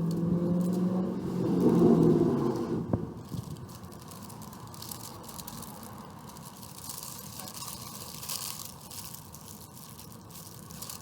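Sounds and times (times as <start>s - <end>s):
paper wrappers crinkling: 1.5s - 11.0s
hard shells bitten and chewed: 3.2s - 11.0s.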